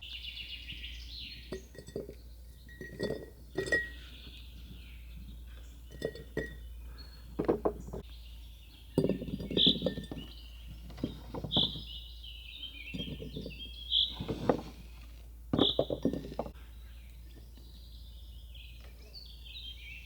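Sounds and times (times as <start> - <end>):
bird singing: 0.0 - 14.8, 15.5 - 20.0
glass jars clinking: 1.4 - 4.8, 5.8 - 6.7, 7.3 - 8.0, 8.9 - 10.3, 10.9 - 11.9, 12.9 - 14.7, 15.5 - 16.6.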